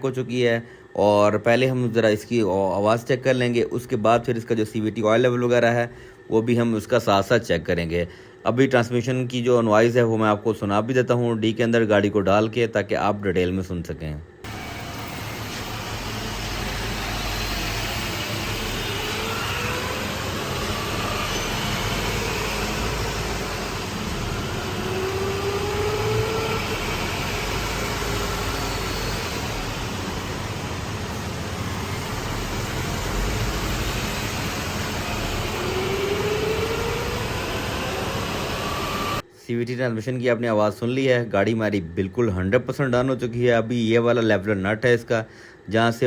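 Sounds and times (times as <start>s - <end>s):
car engine hum: 14.5s - 39.2s
faint whine rising in pitch: 14.5s - 39.2s.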